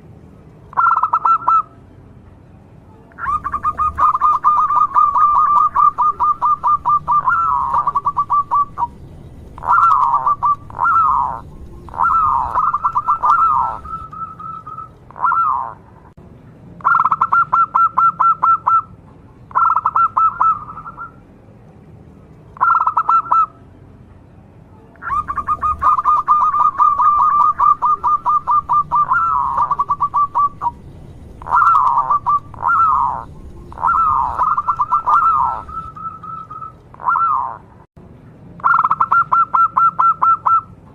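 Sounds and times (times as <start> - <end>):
dove cooing: 0.7 - 1.7, 3.2 - 15.8, 19.5 - 21.2, 22.6 - 23.5, 25.0 - 37.6.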